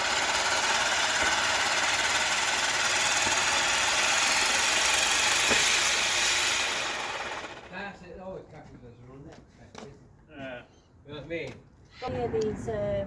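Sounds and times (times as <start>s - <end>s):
firework hissing and crackling: 0.0s - 6.5s.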